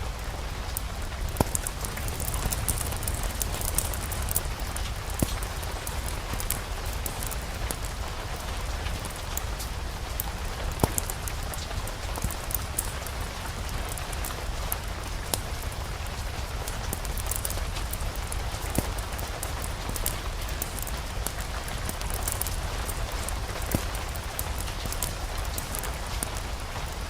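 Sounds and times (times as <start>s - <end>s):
fireplace fire crackling: 0.0s - 27.0s
steady rain: 0.0s - 27.0s.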